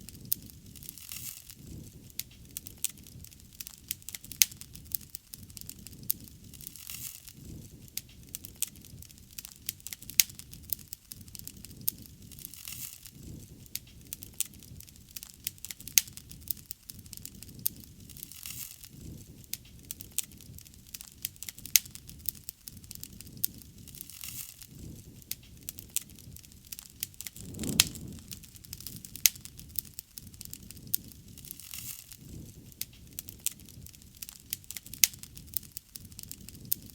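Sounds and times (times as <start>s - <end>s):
bonfire crackling and popping: 0.1s - 36.9s
low rush of flame: 27.3s - 29.6s.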